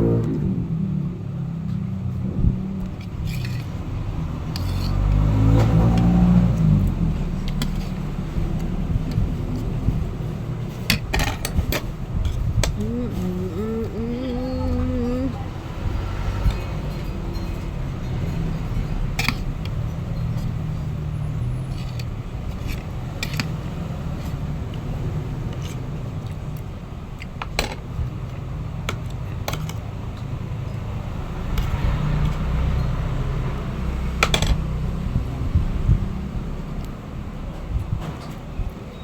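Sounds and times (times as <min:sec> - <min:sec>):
steady low rumble: 0:00.0 - 0:38.8.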